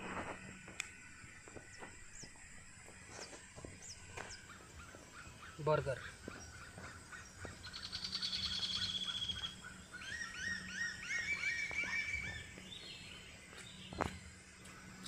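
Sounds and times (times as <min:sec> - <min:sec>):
bird high trill: 0:03.1 - 0:13.2.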